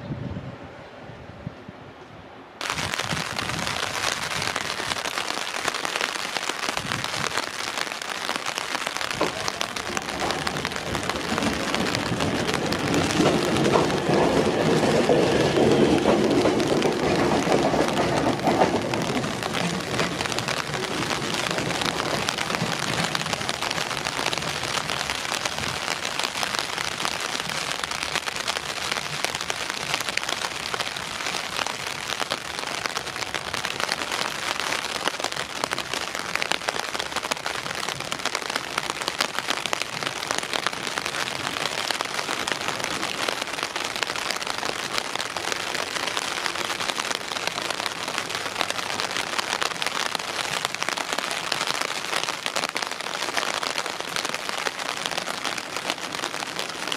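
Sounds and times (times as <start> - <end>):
steady rain patter: 2.6 - 56.9
railcar running low: 9.2 - 24.6.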